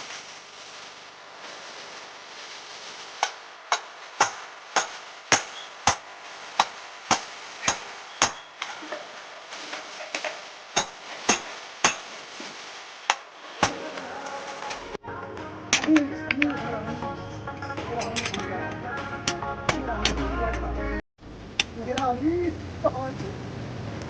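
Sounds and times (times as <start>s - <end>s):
hammer striking iron on anvil: 3.2s - 6.0s, 6.6s - 8.5s, 10.8s - 12.1s.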